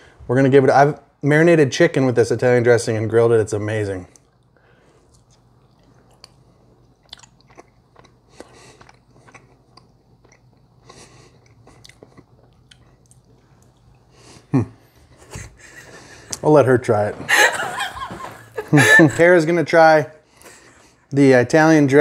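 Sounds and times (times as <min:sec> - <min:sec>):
faint steady hum: 0:00.0 - 0:22.0
person chewing food: 0:04.1 - 0:16.4.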